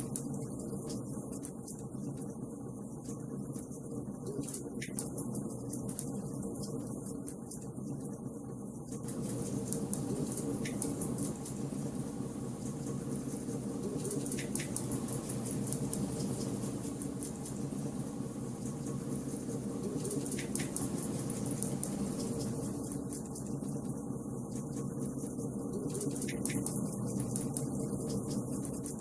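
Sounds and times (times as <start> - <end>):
wood fire crackling: 9.0 - 29.0.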